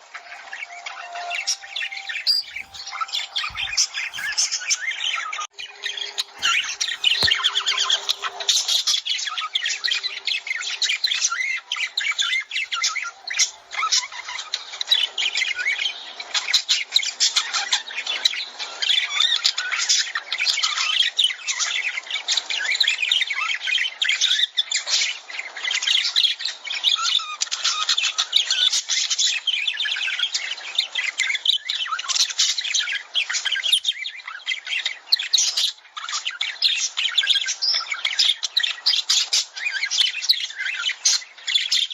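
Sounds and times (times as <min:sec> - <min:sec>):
lovebirds chirping and squawking: 0:00.0 - 0:16.2, 0:27.7 - 0:41.9.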